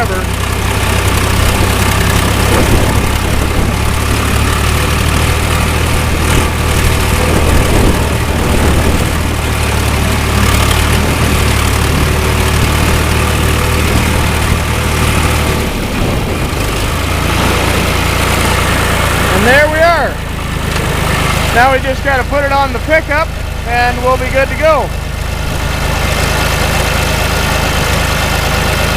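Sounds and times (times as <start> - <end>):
tractor diesel engine running: 0.0 - 28.9.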